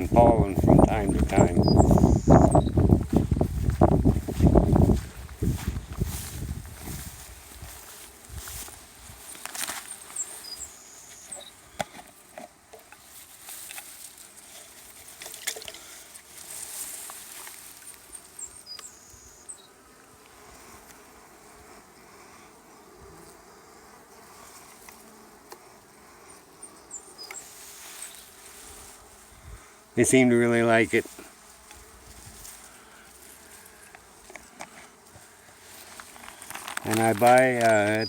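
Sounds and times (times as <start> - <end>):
honey bees buzzing: 0.0 - 38.0
handling clicks and rustles: 35.8 - 38.0.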